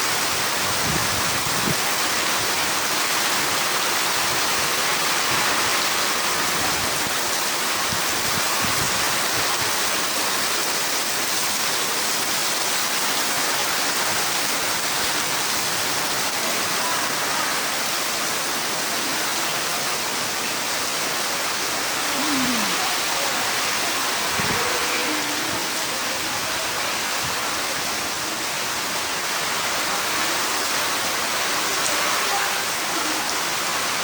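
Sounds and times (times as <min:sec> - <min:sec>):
heavy rain falling: 0:00.0 - 0:34.0
strong wind: 0:00.1 - 0:02.6, 0:05.2 - 0:10.1, 0:22.0 - 0:28.3.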